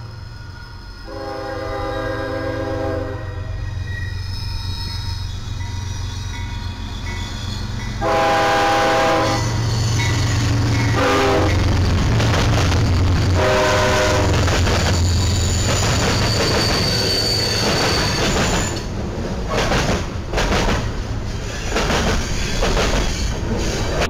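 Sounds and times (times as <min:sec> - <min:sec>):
diesel locomotive engine rumble: 0:00.0 - 0:24.0
high wheel squeal: 0:00.1 - 0:02.2, 0:03.2 - 0:12.0, 0:14.3 - 0:18.9, 0:21.3 - 0:24.0
train horn blast: 0:01.1 - 0:03.6, 0:08.0 - 0:10.2, 0:10.8 - 0:11.6, 0:13.3 - 0:14.5.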